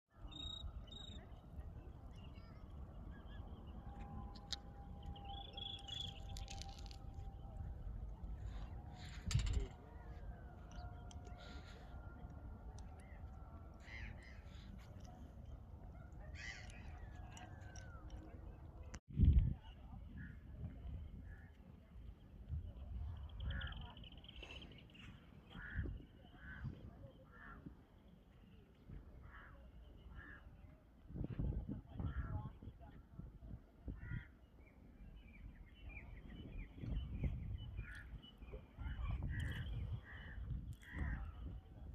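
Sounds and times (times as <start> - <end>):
small birds chirping: 0.2 - 3.8.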